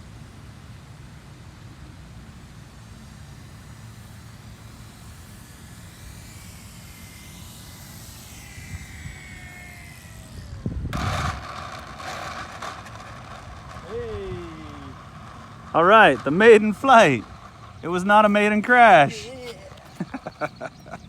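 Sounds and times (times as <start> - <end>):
model plane motor whining: 0.0 - 21.0
loud rushing noise: 10.9 - 19.4.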